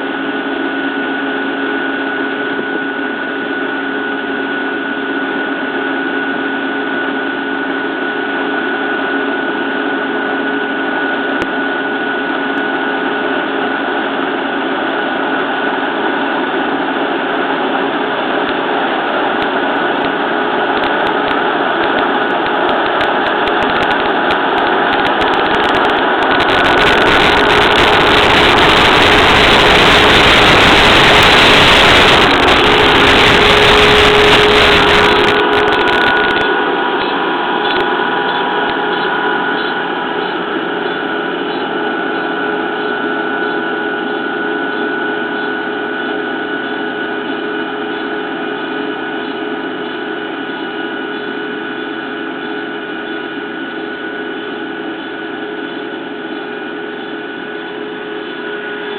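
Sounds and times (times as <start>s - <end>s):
combine harvester drone: 0.0s - 58.9s
loud rushing noise: 17.9s - 40.7s.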